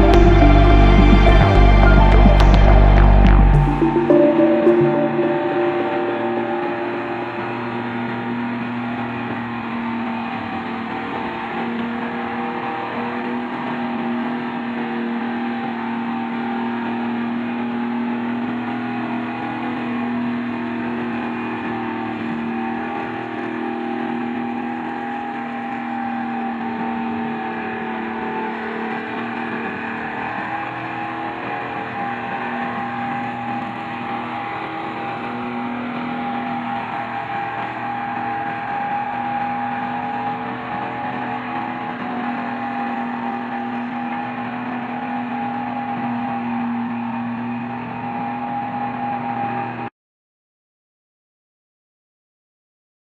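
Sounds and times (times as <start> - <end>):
vehicle engine running: 0.0 - 4.0.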